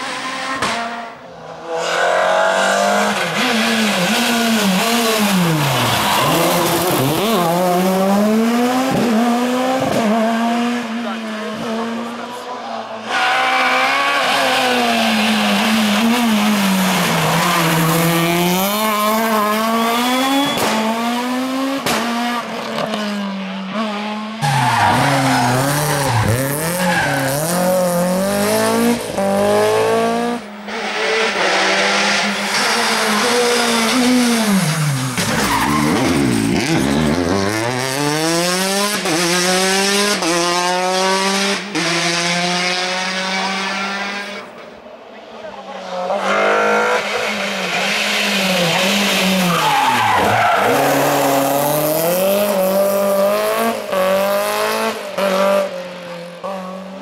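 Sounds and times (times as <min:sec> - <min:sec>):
rally car engines revving: 0:00.0 - 0:57.0
tyres squealing and skidding: 0:01.6 - 0:07.7, 0:12.6 - 0:20.8, 0:24.4 - 0:27.9, 0:30.7 - 0:37.1, 0:45.8 - 0:52.5.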